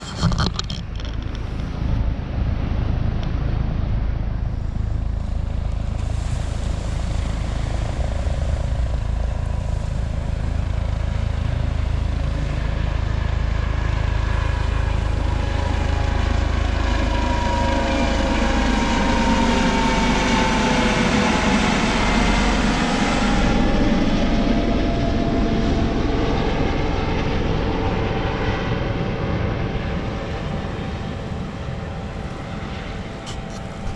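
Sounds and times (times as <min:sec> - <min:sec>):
helicopter flying over: 0:00.0 - 0:33.9.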